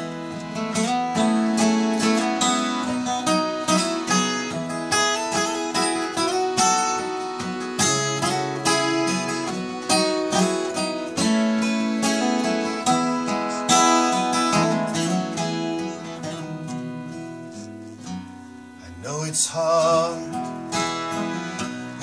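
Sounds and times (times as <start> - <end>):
fiddle playing: 0.0 - 18.8, 20.0 - 22.0
accordion: 0.0 - 22.0
acoustic guitar strumming: 0.0 - 22.0.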